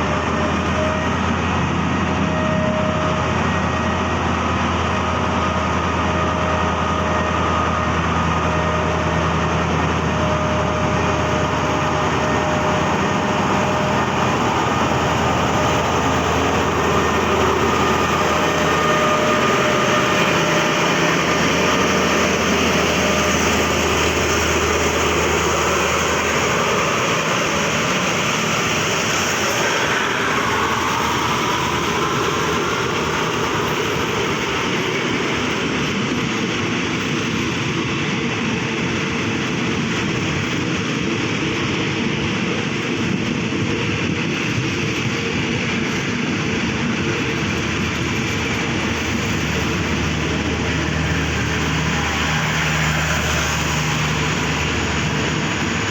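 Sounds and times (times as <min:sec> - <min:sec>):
low engine hum: 0:00.0 - 0:36.2
train wheels rumbling on rails: 0:00.0 - 0:55.9.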